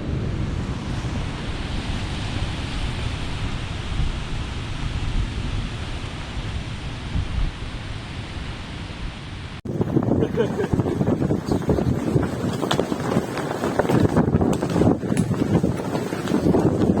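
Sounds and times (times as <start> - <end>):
strong wind through trees: 0.0 - 17.0
wind buffeting microphone: 0.0 - 17.0.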